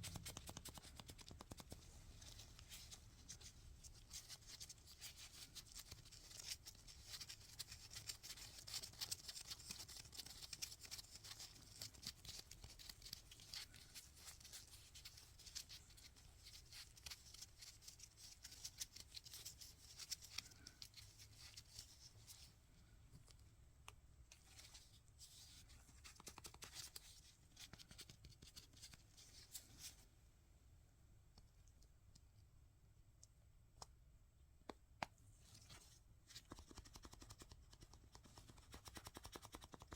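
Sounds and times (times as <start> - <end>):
small clicks and taps: 0.0 - 1.9.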